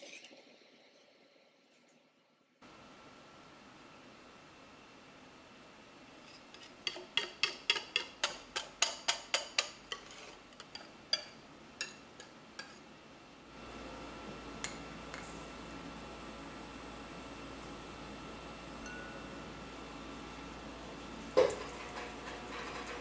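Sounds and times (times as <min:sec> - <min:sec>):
faint steady hum: 0:00.0 - 0:23.0
whisk clinking against bowl: 0:06.6 - 0:12.8.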